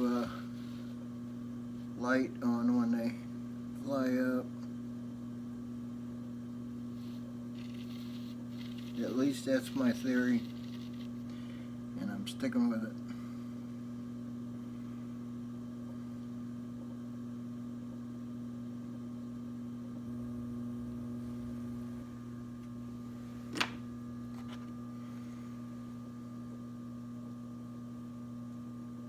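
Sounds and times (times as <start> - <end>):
potter's wheel motor humming: 0.0 - 1.4, 6.7 - 12.0, 19.9 - 24.7.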